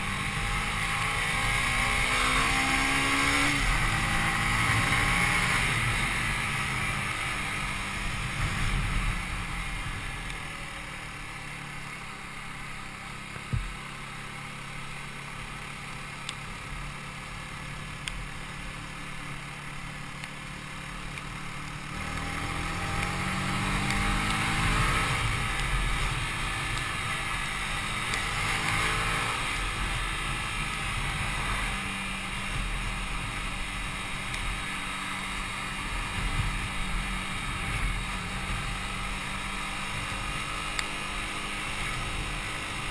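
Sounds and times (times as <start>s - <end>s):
motorcycle engine revving: 0.0s - 42.9s
wind noise: 2.4s - 10.5s, 35.8s - 39.2s.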